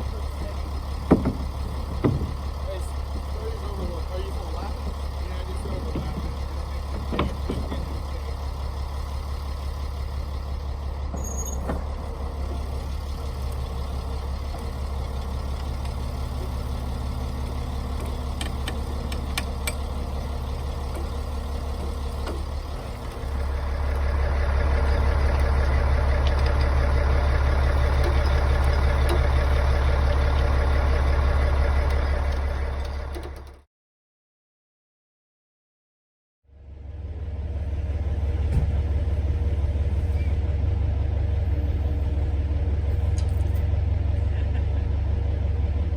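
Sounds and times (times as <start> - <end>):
bulldozer diesel engine running: 0.0 - 33.7, 36.6 - 45.9.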